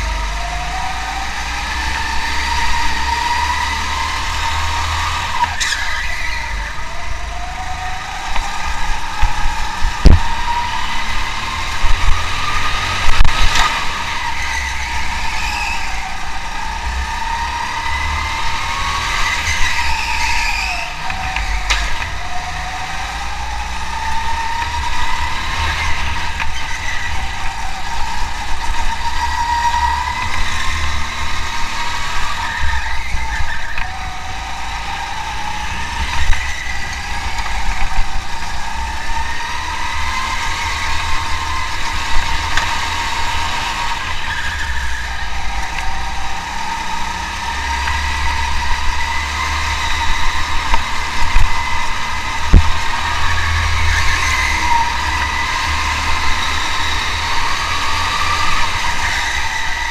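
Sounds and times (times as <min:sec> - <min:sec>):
racing car engine accelerating: 0:00.0 - 0:59.9.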